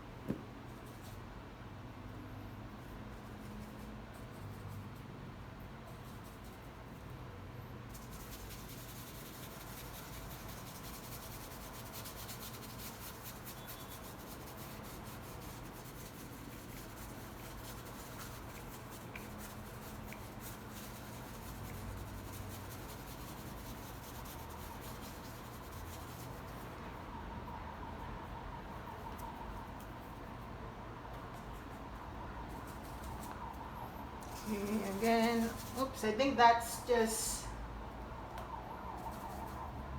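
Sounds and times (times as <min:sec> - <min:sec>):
paintbrush scrubbing paint: 0:07.9 - 0:26.8, 0:34.2 - 0:36.7.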